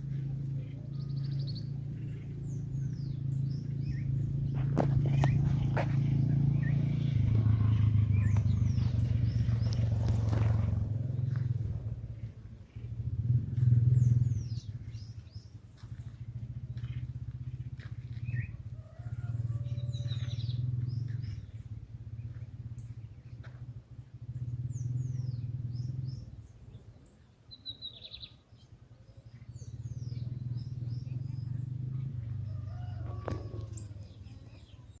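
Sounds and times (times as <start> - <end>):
low rumble: 0.0 - 26.6
small birds chirping: 0.0 - 35.0.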